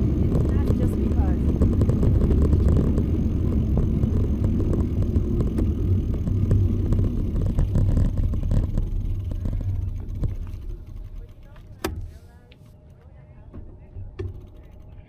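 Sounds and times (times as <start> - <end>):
wind buffeting microphone: 0.0 - 11.4
bicycle knocks and rattles: 0.0 - 12.2, 13.4 - 15.0.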